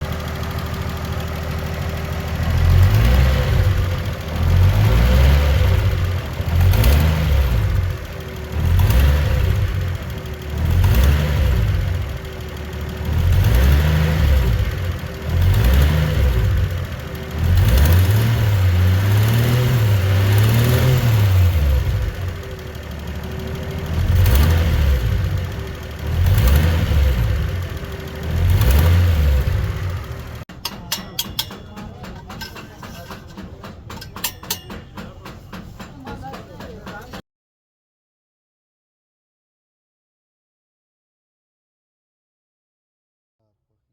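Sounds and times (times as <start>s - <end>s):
car engine revving: 2.3s - 30.4s.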